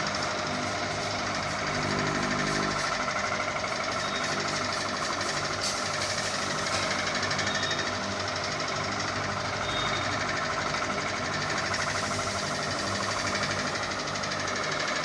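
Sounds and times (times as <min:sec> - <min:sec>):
ceiling fan rattling: 0:00.0 - 0:15.0.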